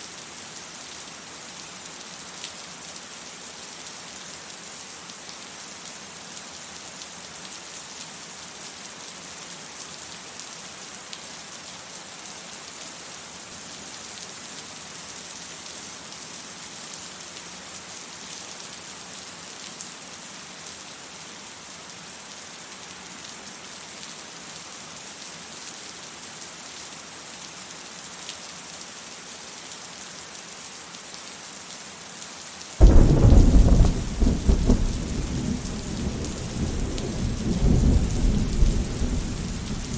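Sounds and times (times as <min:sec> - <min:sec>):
steady rain: 0:00.0 - 0:39.9
thunder clap and rumble: 0:32.8 - 0:39.9.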